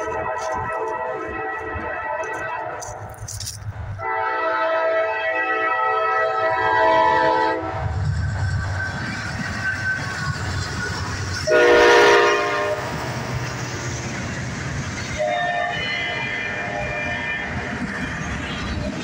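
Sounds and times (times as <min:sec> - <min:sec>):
locomotive air horn blast: 0:00.0 - 0:03.0, 0:04.0 - 0:07.9, 0:11.5 - 0:13.0, 0:15.2 - 0:17.6
diesel locomotive rumble: 0:00.0 - 0:19.0.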